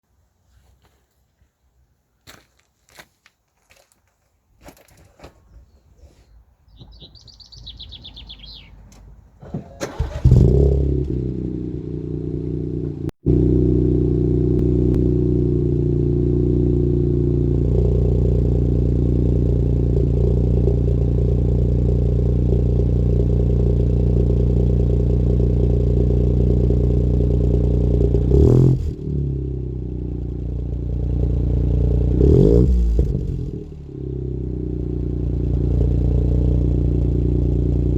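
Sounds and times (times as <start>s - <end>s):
car engine starting and idling: 6.8s - 37.9s
engine revving: 9.8s - 37.9s.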